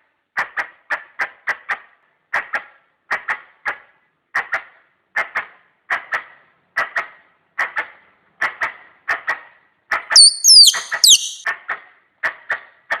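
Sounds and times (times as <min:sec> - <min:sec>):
high falling whistles: 0:10.2 - 0:11.4
sharp double chirps: 0:10.2 - 0:11.4.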